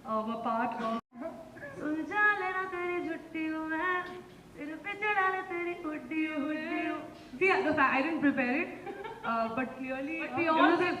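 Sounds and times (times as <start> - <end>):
woman singing unaccompanied: 0.1 - 11.0.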